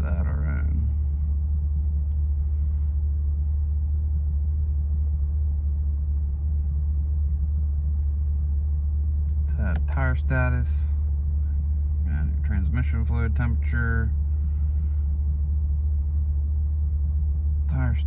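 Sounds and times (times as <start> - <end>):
car engine idling: 0.0 - 6.7, 7.5 - 18.0.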